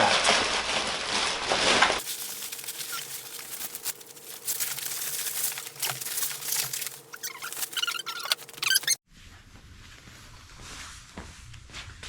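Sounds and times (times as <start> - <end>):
foam packing wrap crinkling: 0.1 - 9.0.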